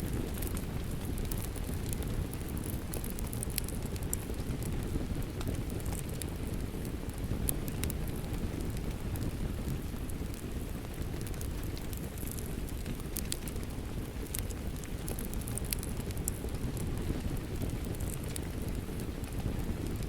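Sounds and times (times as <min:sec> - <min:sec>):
steady rain: 0:00.0 - 0:20.0
wood fire crackling: 0:00.0 - 0:20.0.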